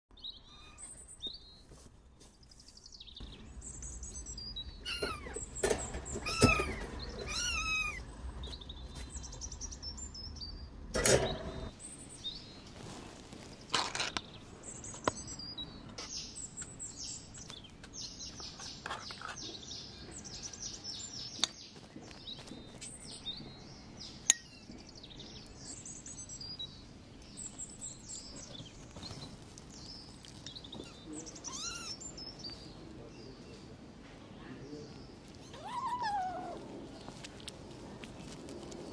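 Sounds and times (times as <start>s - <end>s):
kittens mewing: 4.7s - 8.2s, 30.8s - 32.2s, 35.4s - 36.7s.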